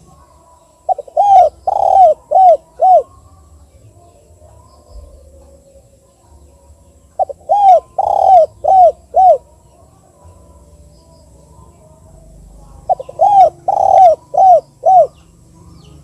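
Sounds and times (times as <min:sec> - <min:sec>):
dove cooing: 0:00.9 - 0:03.2, 0:07.2 - 0:09.6, 0:12.5 - 0:15.3.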